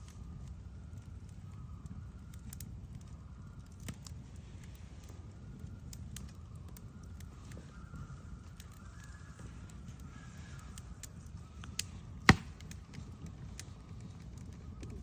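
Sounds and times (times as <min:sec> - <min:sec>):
sharp loud knock: 0:12.3 - 0:12.6.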